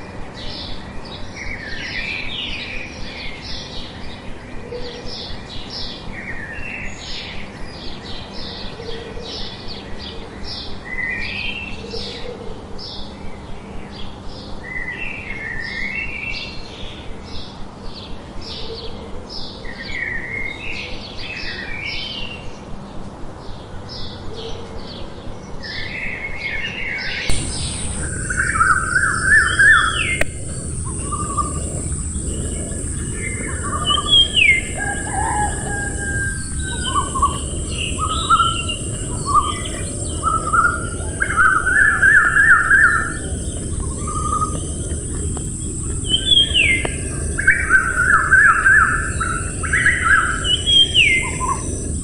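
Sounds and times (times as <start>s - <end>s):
birds chirping and trilling: 25.6s - 52.0s
steady high hiss: 27.1s - 52.0s.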